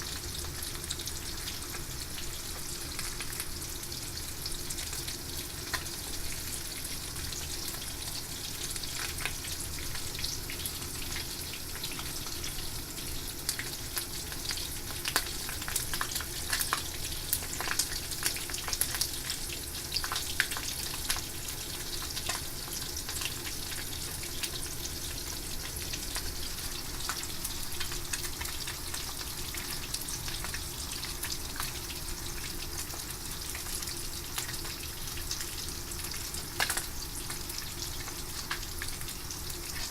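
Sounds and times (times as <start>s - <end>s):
fish frying in hot oil: 0.0s - 39.9s
oil crackling and popping: 0.0s - 39.9s.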